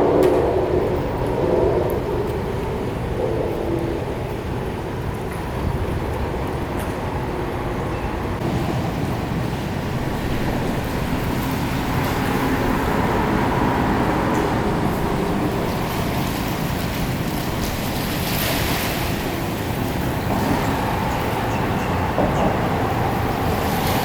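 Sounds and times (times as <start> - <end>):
engine hum: 0.0 - 24.0
wind noise on microphone: 0.0 - 24.0
water washing: 8.4 - 24.0.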